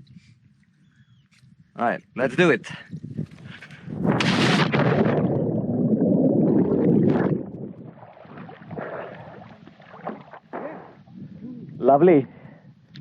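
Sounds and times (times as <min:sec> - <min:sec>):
quiet splashing: 0:03.4 - 0:11.8
churning bubbling water: 0:03.9 - 0:11.3
person splashing into water: 0:04.1 - 0:11.1.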